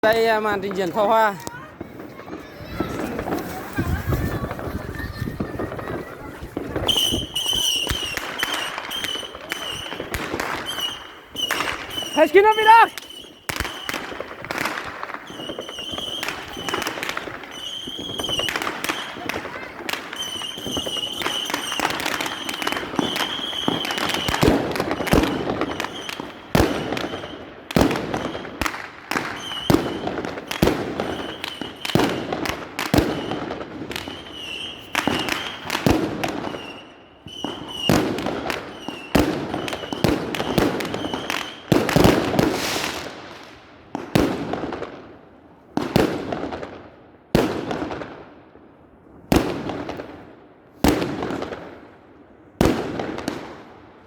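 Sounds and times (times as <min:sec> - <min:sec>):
fireworks bangs with rumble: 0:00.0 - 0:45.1, 0:45.8 - 0:48.2, 0:49.3 - 0:51.9, 0:52.6 - 0:53.7
high firework whistle: 0:03.9 - 0:14.2, 0:15.2 - 0:19.4, 0:20.0 - 0:41.7.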